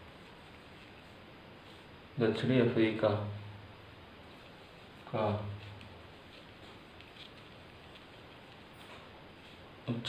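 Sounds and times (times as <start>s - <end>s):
soft scratchy writing strokes: 0.0s - 2.2s, 4.0s - 9.9s
faint room noise: 0.0s - 10.0s.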